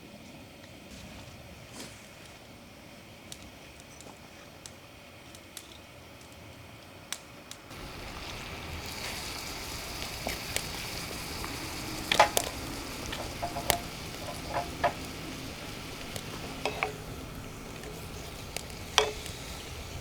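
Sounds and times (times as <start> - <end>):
food sizzling in a pan: 7.7 - 20.0
sharp clicks and knocks: 10.2 - 20.0.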